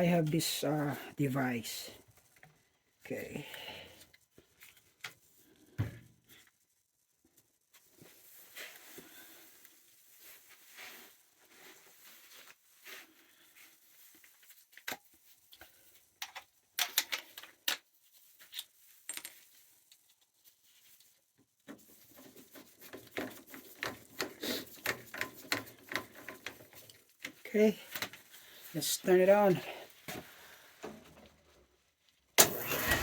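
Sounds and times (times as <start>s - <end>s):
small parts and tools clicking: 14.8s - 20.2s, 21.7s - 28.2s.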